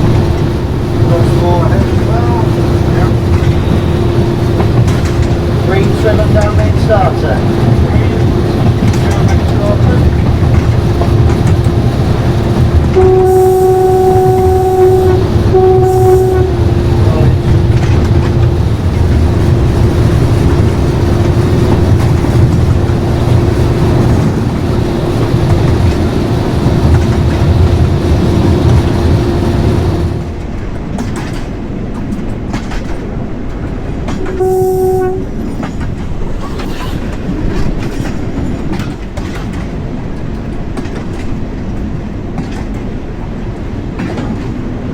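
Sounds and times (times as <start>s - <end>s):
wheels clicking over rail joints: 0.0s - 13.2s, 16.5s - 34.4s, 35.0s - 44.9s
diesel locomotive engine whining: 0.0s - 44.9s
locomotive horn blasts: 12.8s - 18.6s, 34.1s - 35.4s.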